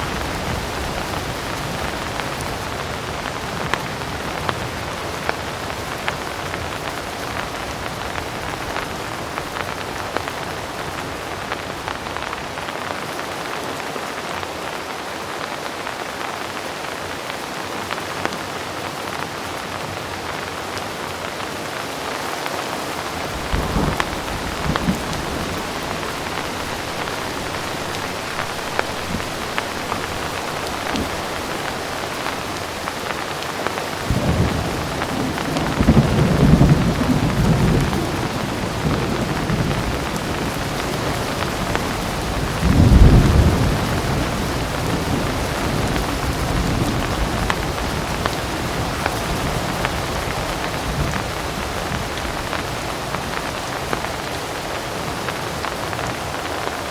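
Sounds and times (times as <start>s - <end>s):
heavy rain falling: 0.0s - 56.9s
distant thunder rolling: 23.0s - 48.4s.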